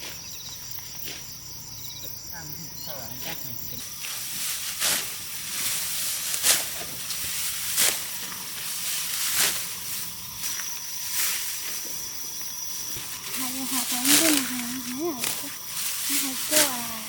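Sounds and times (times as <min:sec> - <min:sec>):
rice stalks swishing: 0:03.8 - 0:12.1, 0:12.8 - 0:17.0
steady rustle: 0:03.8 - 0:17.0.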